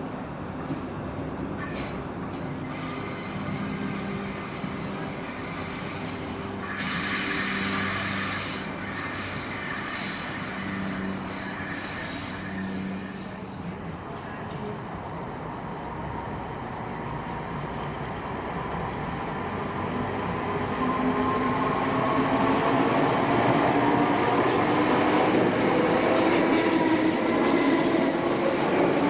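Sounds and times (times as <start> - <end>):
train wheels squealing on rails: 1.5 - 14.0.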